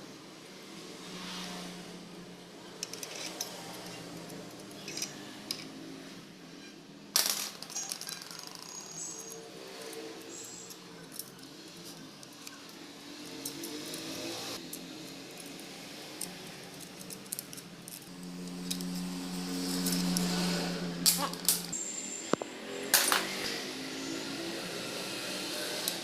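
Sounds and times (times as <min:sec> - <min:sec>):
metal tools clinking: 0:02.8 - 0:05.8, 0:07.2 - 0:21.8.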